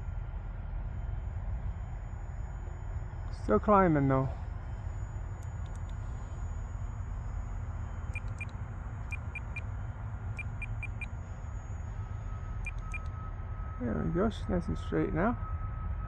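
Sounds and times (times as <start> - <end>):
faint high whine: 0.0 - 16.0
steady low rumble: 3.2 - 11.1
transmitter button beeps: 8.2 - 8.5, 9.1 - 9.6, 10.4 - 11.1, 12.7 - 13.1.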